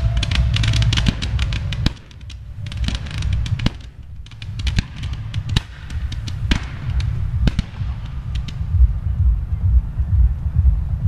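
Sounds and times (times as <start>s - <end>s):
fireworks bangs and cracks: 0.0s - 8.7s
low rumble: 0.0s - 11.0s.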